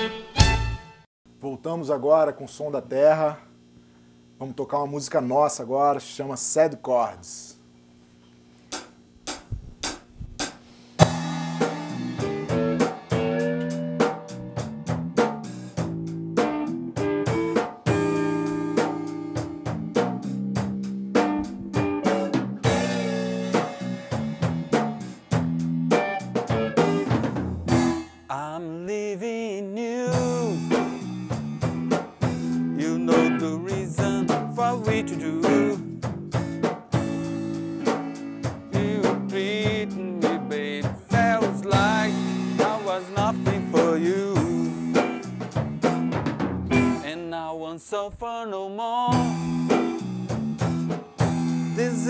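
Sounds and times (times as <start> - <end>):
blues band playing: 0.0 - 1.1, 11.0 - 28.2, 30.1 - 47.1, 49.1 - 52.0
drums: 0.0 - 1.1, 8.7 - 28.3, 30.1 - 47.2, 49.1 - 52.0
wavering lead guitar note: 11.0 - 15.2, 16.6 - 20.1, 21.2 - 27.1, 30.1 - 36.0, 37.1 - 47.1
bass line: 11.0 - 28.2, 30.1 - 47.1, 49.1 - 52.0.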